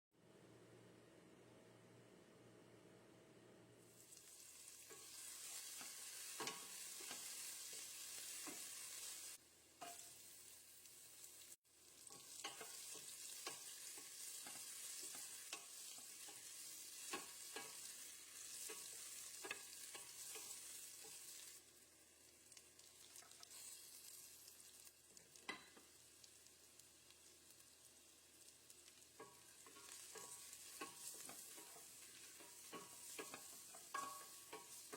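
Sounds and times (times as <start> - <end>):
food sizzling in a pan: 3.8 - 34.9
utensil scraping pan: 29.2 - 34.9.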